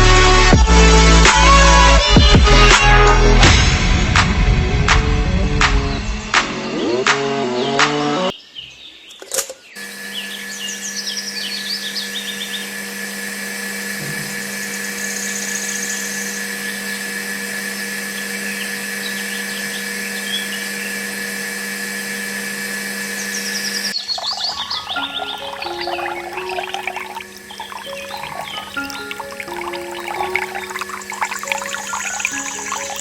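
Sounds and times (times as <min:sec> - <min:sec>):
small electric motor humming: 0:09.8 - 0:24.0.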